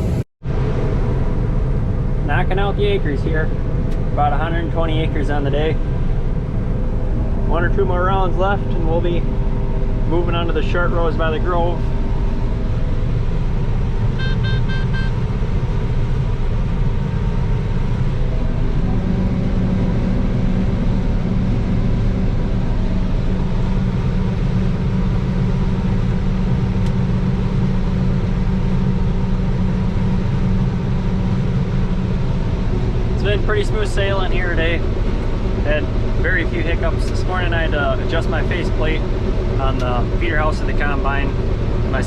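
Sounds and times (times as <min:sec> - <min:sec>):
combine harvester drone: 0:00.0 - 0:42.0
short electronic beeps: 0:14.2 - 0:15.2.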